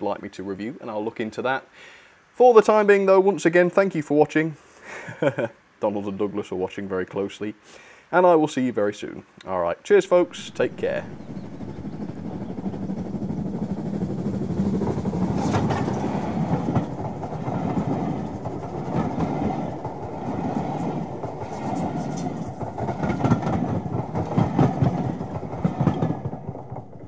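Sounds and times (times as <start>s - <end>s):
rumble of train coaches: 10.3s - 27.0s
train wheels clicking: 10.3s - 27.0s.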